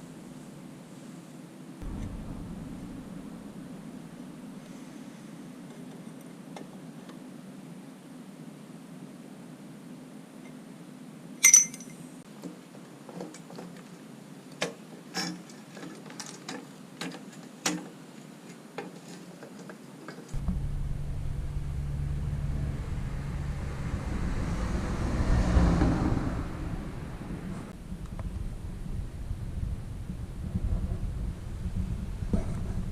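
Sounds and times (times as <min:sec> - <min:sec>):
low rumble: 0:01.8 - 0:04.7, 0:20.4 - 0:32.9
metal tools clinking: 0:11.4 - 0:12.0.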